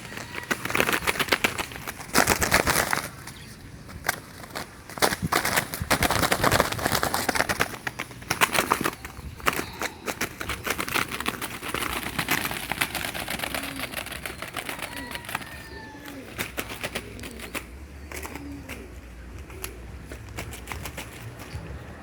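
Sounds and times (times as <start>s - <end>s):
doves fluttering in wire trap: 0.0s - 22.0s.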